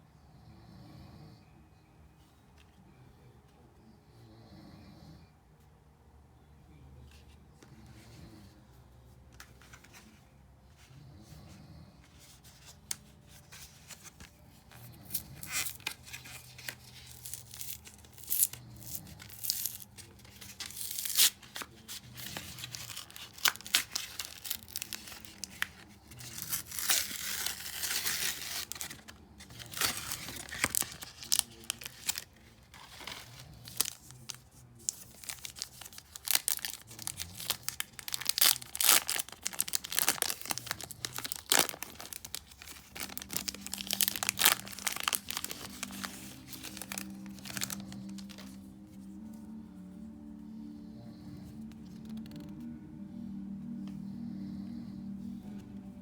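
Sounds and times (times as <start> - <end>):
foil wrappers tearing and crinkling: 14.8 - 48.6.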